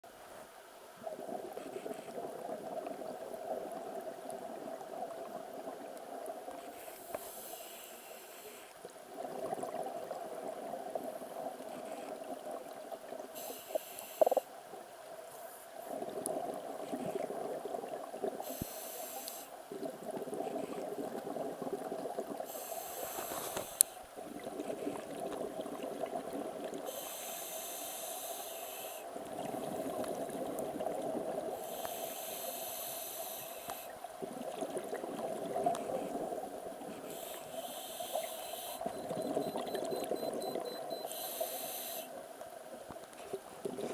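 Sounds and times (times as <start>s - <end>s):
diver inhaling underwater: 6.7s - 8.8s, 13.4s - 14.5s, 18.4s - 19.6s, 22.4s - 24.0s, 26.8s - 29.1s, 31.5s - 34.0s, 35.8s - 42.2s.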